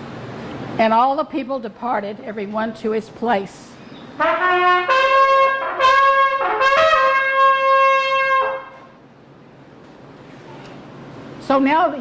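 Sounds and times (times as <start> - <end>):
trumpet call: 4.2 - 9.0.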